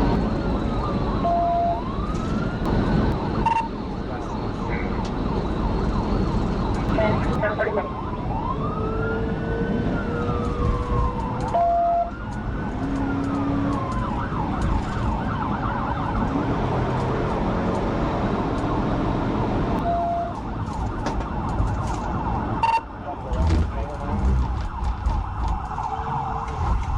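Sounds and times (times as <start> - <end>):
car road and engine noise: 0.0 - 26.9
police siren wailing and yelping: 0.4 - 2.7, 5.2 - 16.6, 19.8 - 26.9.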